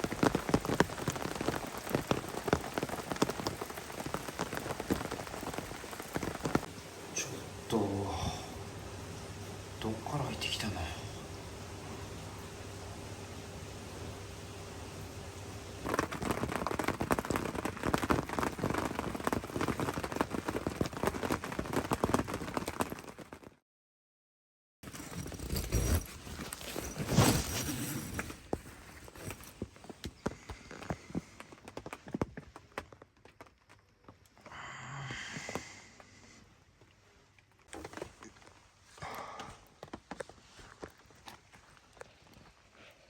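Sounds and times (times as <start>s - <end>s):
steady hiss: 0.0s - 21.4s
large raindrops tapping: 0.0s - 23.6s, 28.7s - 36.4s, 37.0s - 43.0s
rain falling: 0.0s - 23.6s, 28.1s - 43.0s.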